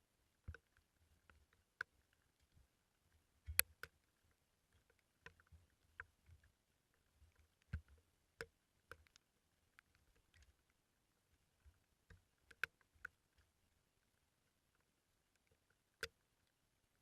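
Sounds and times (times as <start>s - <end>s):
faint sharp taps and knocks: 0.4s - 10.6s.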